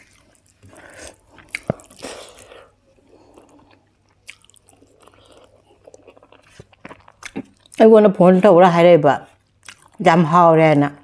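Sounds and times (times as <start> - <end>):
person chewing food: 0.0 - 7.9, 9.3 - 10.0.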